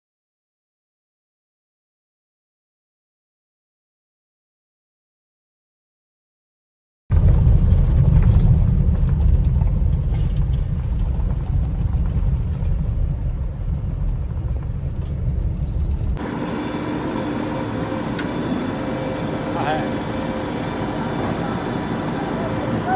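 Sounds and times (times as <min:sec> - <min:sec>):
diesel engine rumbling: 0:07.1 - 0:22.9.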